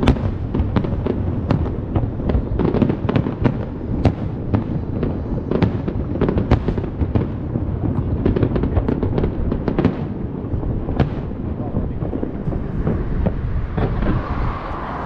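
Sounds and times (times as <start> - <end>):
low rumble: 10.4 - 15.0.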